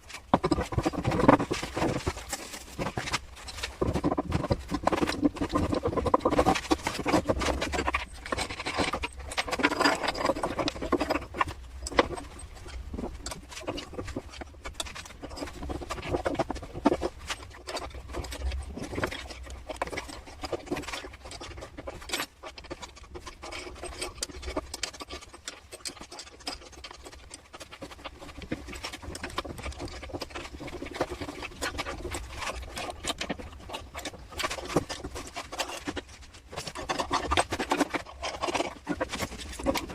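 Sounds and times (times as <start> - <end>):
scraping and rubbing: 0.0 - 39.9
small clicks and knocks: 0.0 - 39.9.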